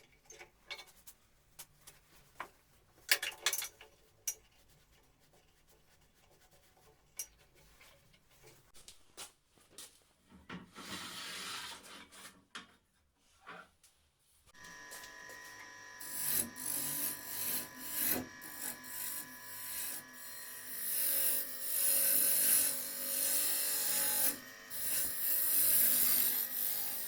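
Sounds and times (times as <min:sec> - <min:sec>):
rubbing or scraping: 0:10.7 - 0:12.5.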